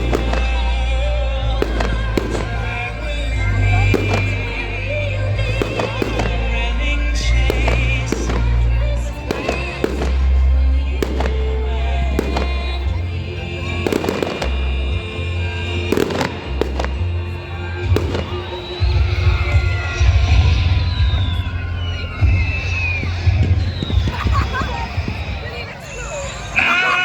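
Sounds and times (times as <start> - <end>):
music with heavy bass: 0.0 - 24.8
fireworks bangs and crackles: 0.0 - 26.7
falling firework whistles: 15.9 - 25.7.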